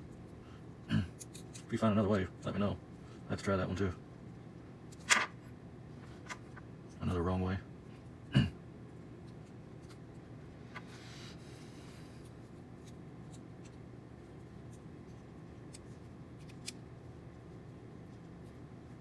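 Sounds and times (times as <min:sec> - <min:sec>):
steady low hum: 0:00.0 - 0:19.0
small clicks of wire work: 0:01.2 - 0:01.7, 0:15.6 - 0:16.9.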